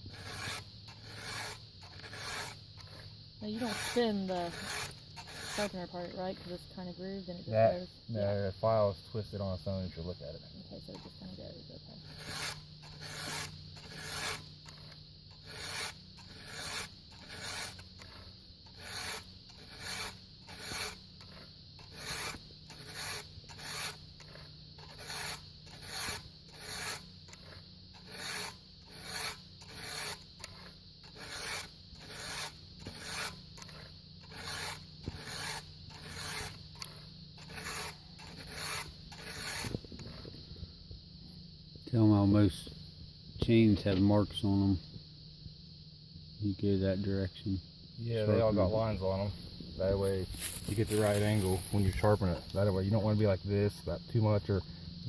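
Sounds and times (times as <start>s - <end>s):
file rasping on chainsaw chain: 0.0s - 6.1s, 12.0s - 40.2s, 50.0s - 53.3s.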